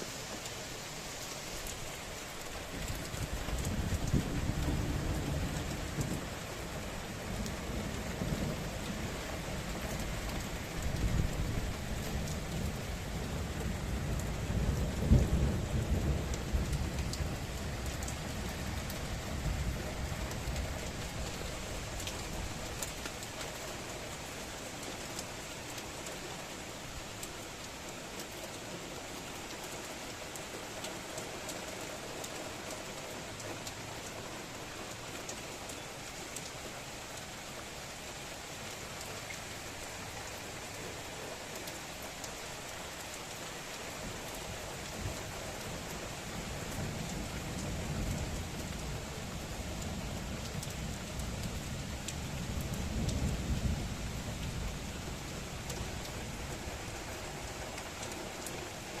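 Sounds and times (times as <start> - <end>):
heavy rain: 0.0 - 59.0
raindrops hitting: 0.0 - 59.0.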